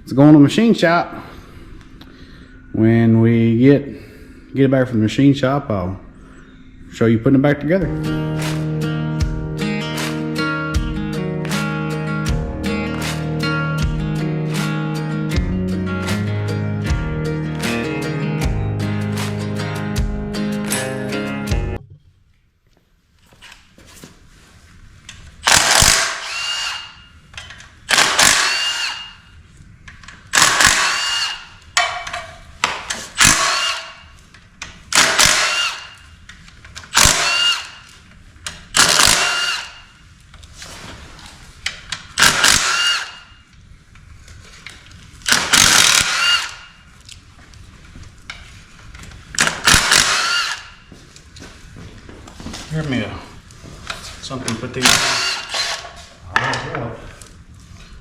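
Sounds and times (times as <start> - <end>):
power tool whining in bursts: 25.5 - 27.0, 28.0 - 29.2, 30.4 - 31.5, 38.8 - 39.8, 42.2 - 43.3, 45.3 - 46.7, 49.6 - 50.8.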